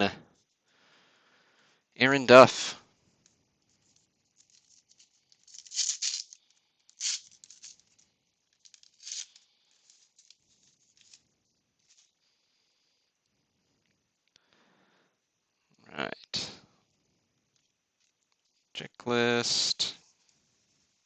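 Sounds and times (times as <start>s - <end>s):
cards being handled: 3.6s - 11.2s, 11.8s - 12.2s
wrapper tearing and crinkling: 4.3s - 11.2s.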